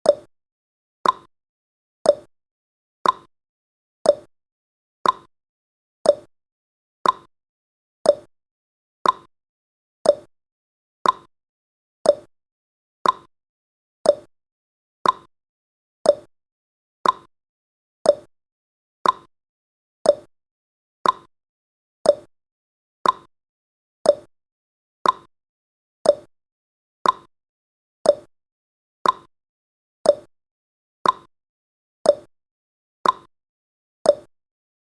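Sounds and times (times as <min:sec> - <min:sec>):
clock ticking tick-tock: 0:00.0 - 0:00.3, 0:01.0 - 0:01.3, 0:02.0 - 0:02.3, 0:03.0 - 0:03.3, 0:04.0 - 0:04.3, 0:05.0 - 0:05.3, 0:06.0 - 0:06.3, 0:07.0 - 0:07.3, 0:08.0 - 0:08.3, 0:09.0 - 0:09.3, 0:10.0 - 0:10.3, 0:11.0 - 0:11.3, 0:12.0 - 0:12.3, 0:13.0 - 0:13.3, 0:14.0 - 0:14.3, 0:15.0 - 0:15.3, 0:16.0 - 0:16.3, 0:17.0 - 0:17.3, 0:18.0 - 0:18.3, 0:19.0 - 0:19.3, 0:20.0 - 0:20.3, 0:21.0 - 0:21.3, 0:22.0 - 0:22.3, 0:23.0 - 0:23.3, 0:24.0 - 0:24.3, 0:25.0 - 0:25.3, 0:26.0 - 0:26.3, 0:27.0 - 0:27.3, 0:28.0 - 0:28.3, 0:29.0 - 0:29.3, 0:30.0 - 0:30.3, 0:31.0 - 0:31.3, 0:32.0 - 0:32.3, 0:33.0 - 0:33.3, 0:34.0 - 0:34.3.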